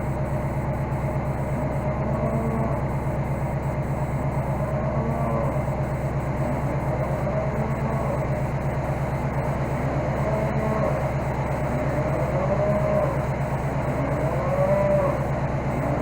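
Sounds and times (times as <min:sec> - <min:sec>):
skid steer engine running: 0:00.0 - 0:16.0
cattle mooing: 0:02.0 - 0:02.8, 0:04.7 - 0:05.6, 0:07.0 - 0:08.4, 0:10.0 - 0:13.3, 0:13.9 - 0:16.0.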